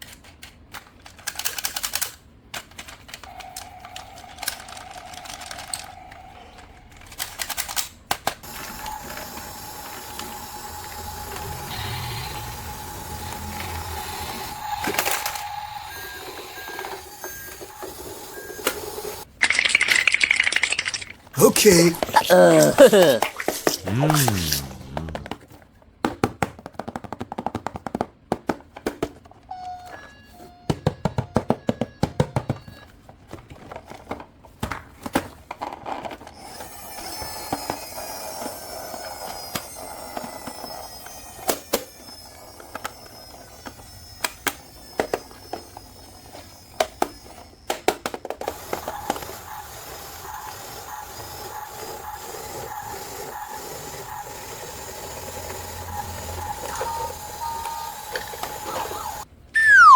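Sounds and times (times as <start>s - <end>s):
plastic toy parts clicking: 0.0s - 6.0s, 7.0s - 8.4s
electronic toy tones: 48.5s - 59.9s.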